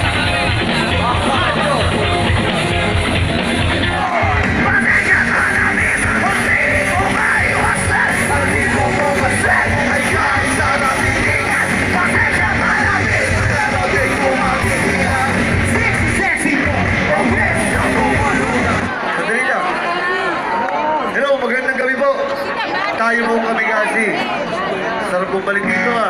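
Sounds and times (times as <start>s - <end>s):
live rock band playing: 0.0s - 19.1s
singer yelling: 3.7s - 21.2s.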